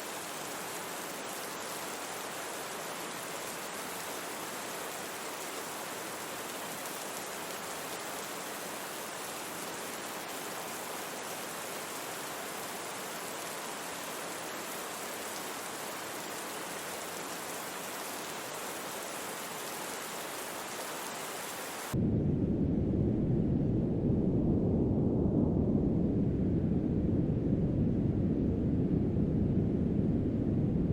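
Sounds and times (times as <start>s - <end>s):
steady rain hiss: 0.0s - 22.0s
low rumble of brown noise: 21.9s - 30.9s.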